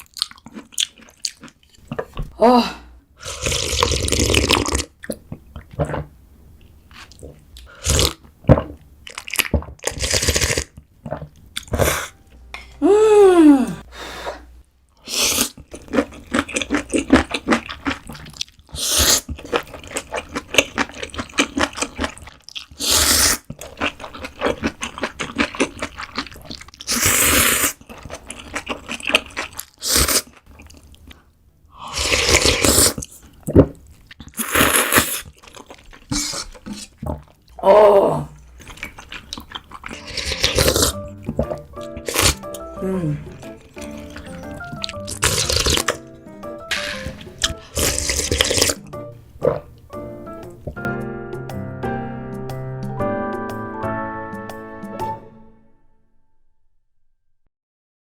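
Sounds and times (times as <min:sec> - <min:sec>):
slurping noodles and chewing: 0:00.0 - 0:02.2, 0:03.2 - 0:12.2, 0:15.0 - 0:37.6, 0:38.4 - 0:49.8
person voicing ah: 0:12.0 - 0:14.0, 0:42.6 - 0:43.6.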